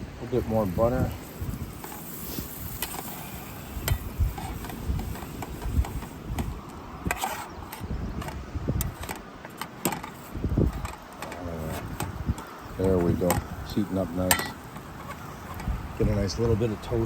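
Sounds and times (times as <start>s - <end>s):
wind buffeting microphone: 0.0s - 17.0s
sharp clicks and knocks: 3.8s - 13.5s.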